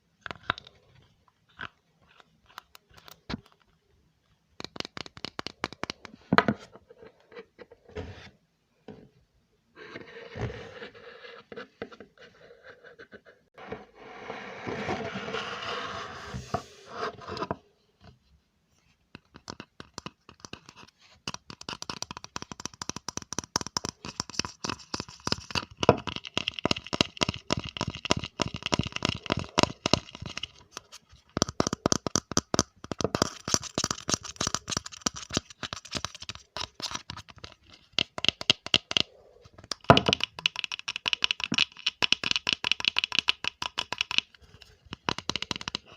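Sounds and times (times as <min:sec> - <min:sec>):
rapid scratching and tapping: 0:19.2 - 0:45.9.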